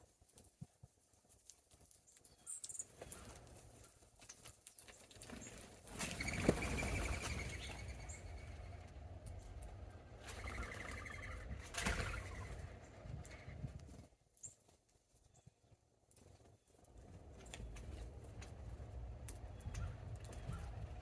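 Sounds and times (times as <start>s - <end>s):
small birds calling: 4.7s - 14.6s, 19.3s - 21.0s
low steady rumble: 7.1s - 14.0s, 16.9s - 21.0s.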